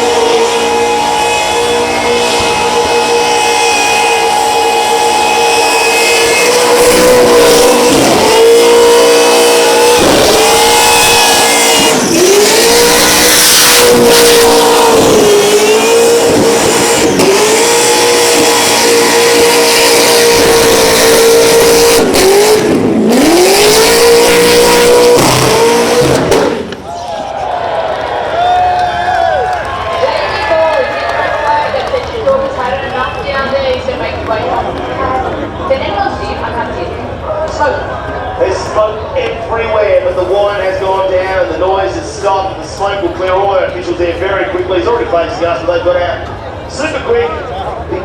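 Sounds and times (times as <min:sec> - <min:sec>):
car engine revving high: 0:00.0 - 0:26.9
tyres screeching: 0:00.0 - 0:27.1
supercharger whine: 0:00.0 - 0:27.2.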